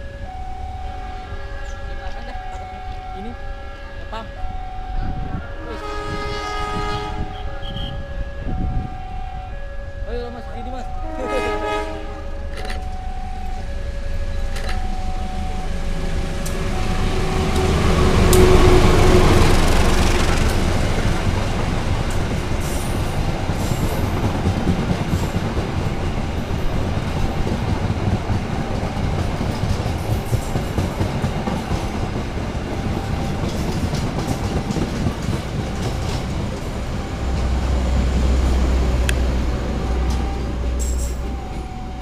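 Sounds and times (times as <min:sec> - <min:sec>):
train coaches rumbling: 0:00.0 - 0:42.0
train horn notes: 0:03.3 - 0:09.4, 0:10.6 - 0:12.6, 0:16.1 - 0:20.6
wheels clacking over rail joints: 0:15.9 - 0:42.0.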